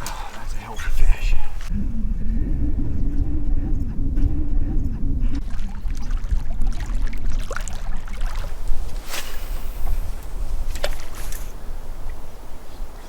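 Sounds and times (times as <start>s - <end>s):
wind buffeting microphone: 0.0s - 13.0s
water splashing and sloshing: 5.3s - 12.3s.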